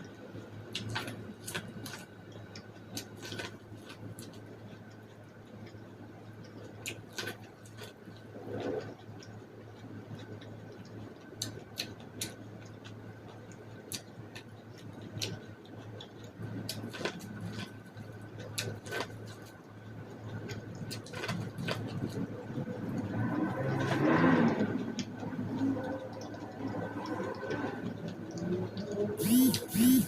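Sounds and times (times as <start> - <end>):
steady low hum: 0.0 - 30.0
person chewing corn: 0.7 - 4.9, 11.4 - 27.7.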